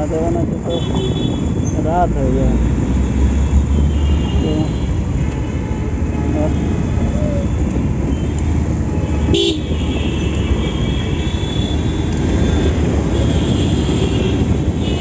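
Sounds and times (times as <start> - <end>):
wind and road noise: 0.0 - 15.0
vehicle horn honk: 9.1 - 15.0.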